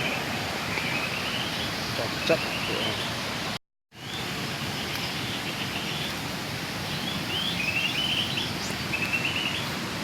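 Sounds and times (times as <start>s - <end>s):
steady outdoor hiss: 0.0s - 10.0s
bird chirping: 4.9s - 9.7s.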